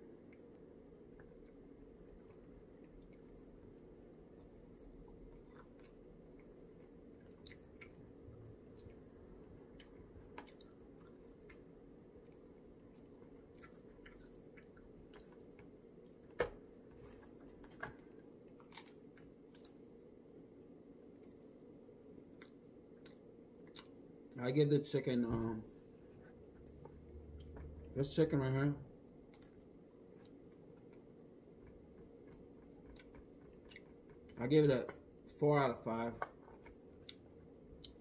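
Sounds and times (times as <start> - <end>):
low room hum: 0.0 - 38.0
person chewing: 1.1 - 8.0, 8.6 - 16.1, 22.4 - 24.0, 29.3 - 34.4, 36.6 - 38.0.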